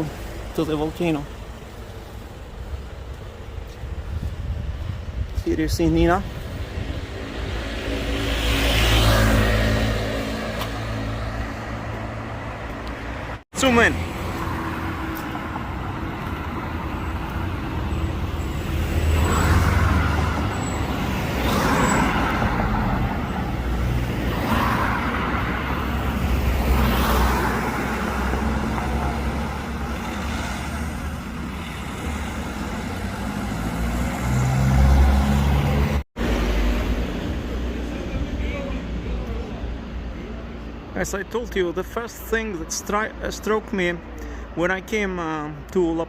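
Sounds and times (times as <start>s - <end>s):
traffic engine and tyre noise: 0.0s - 46.0s
vehicles passing: 0.0s - 46.0s.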